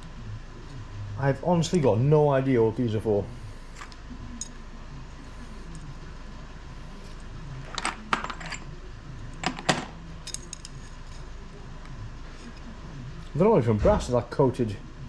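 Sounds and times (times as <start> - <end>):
small metal loops clinking: 10.2 - 11.3.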